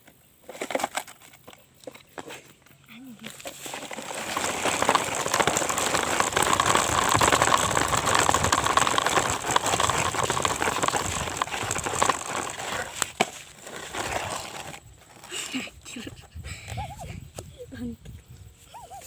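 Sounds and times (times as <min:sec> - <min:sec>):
heavy rattling and clatter: 0:03.4 - 0:15.2.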